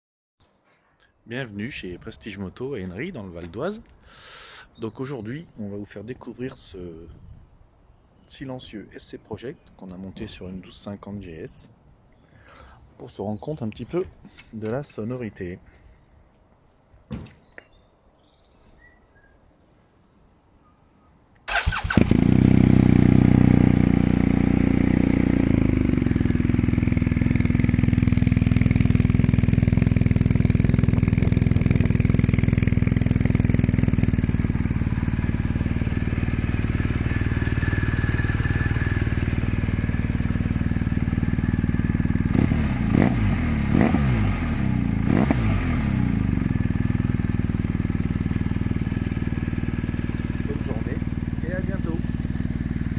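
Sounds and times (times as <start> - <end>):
motorcycle engine idling: 21.5 - 52.9
motorcycle throttle blips: 21.5 - 52.9.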